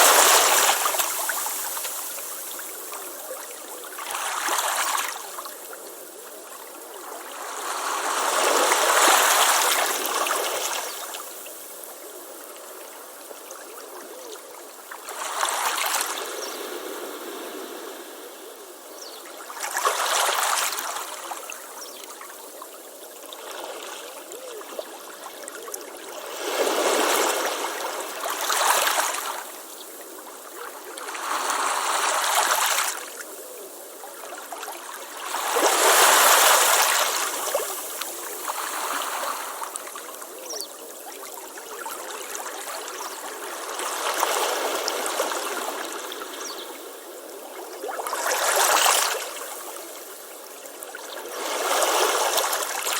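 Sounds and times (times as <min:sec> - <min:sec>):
ocean waves breaking on beach: 0:00.0 - 0:05.2, 0:15.0 - 0:18.8, 0:26.0 - 0:29.7, 0:34.3 - 0:40.1.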